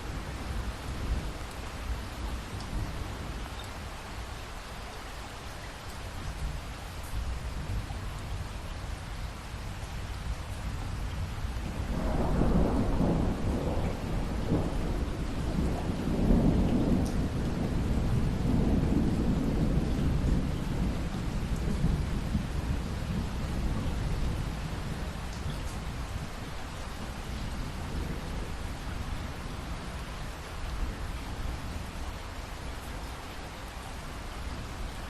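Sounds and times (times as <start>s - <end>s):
steady rain: 0.0s - 35.0s
rolling thunder: 11.2s - 26.5s.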